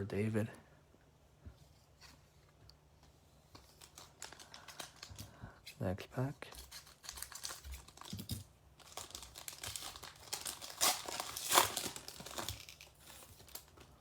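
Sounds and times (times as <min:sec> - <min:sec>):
wrapper crinkling and tearing: 0:03.6 - 0:05.3, 0:06.5 - 0:14.0.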